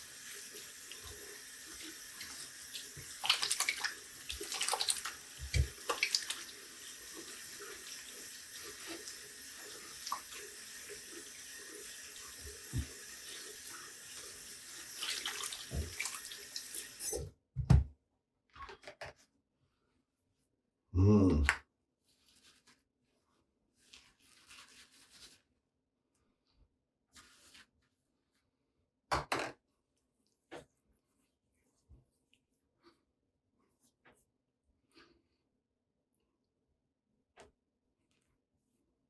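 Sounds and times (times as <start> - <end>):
water splashing: 0.0 - 11.0, 14.8 - 17.0
tap running into sink: 2.2 - 6.4, 12.4 - 13.0, 15.1 - 17.0.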